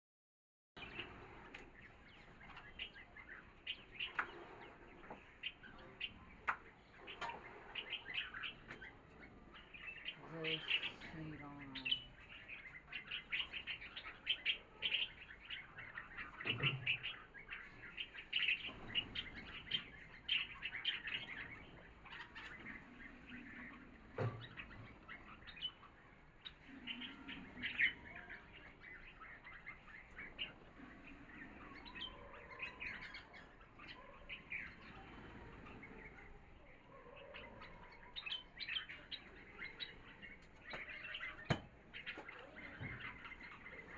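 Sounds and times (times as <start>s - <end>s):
small birds chirping: 0.8s - 43.9s.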